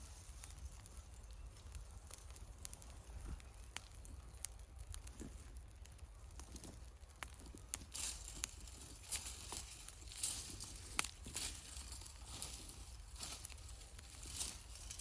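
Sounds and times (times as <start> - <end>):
fire pops and snaps: 0.0 - 15.0
wood fire crackling: 0.0 - 15.0.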